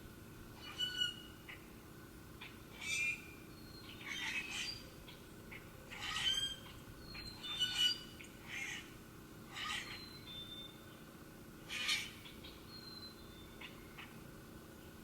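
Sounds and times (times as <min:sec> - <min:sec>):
birds squawking harshly: 0:00.6 - 0:01.6, 0:02.7 - 0:03.2, 0:03.8 - 0:04.8, 0:05.9 - 0:10.1, 0:11.7 - 0:12.5.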